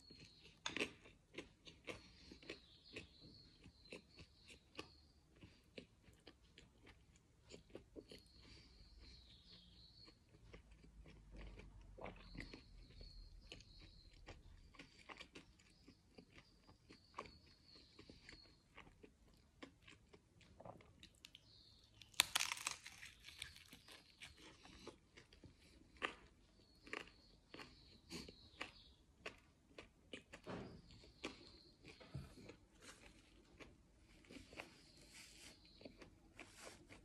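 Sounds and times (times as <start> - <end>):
person chewing crusty bread: 0.0 - 37.0
crunching bite: 19.6 - 33.7.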